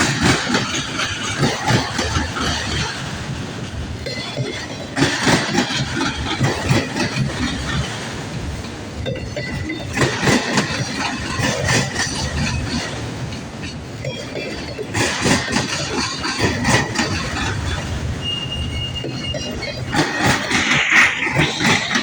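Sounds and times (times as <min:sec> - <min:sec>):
train wheels clacking over rail joints: 0:00.0 - 0:22.0
high wheel squeal: 0:17.0 - 0:22.0.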